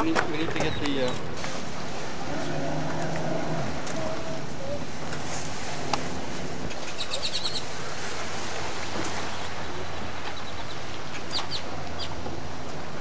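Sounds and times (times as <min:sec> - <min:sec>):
bird chirping: 0:00.4 - 0:01.3, 0:06.7 - 0:07.8, 0:09.2 - 0:12.2
steady low rumble: 0:01.3 - 0:13.0.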